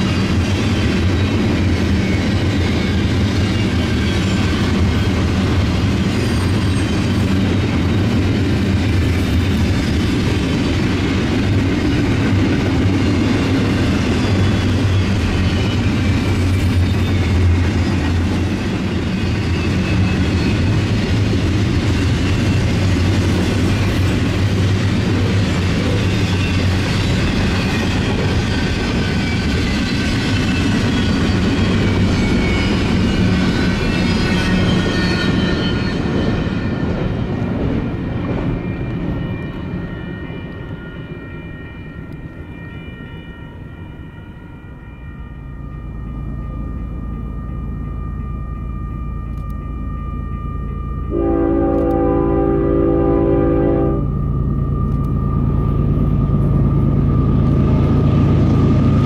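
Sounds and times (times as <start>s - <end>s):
steel train wheels rumbling on rail: 0.0s - 42.7s, 51.1s - 59.0s.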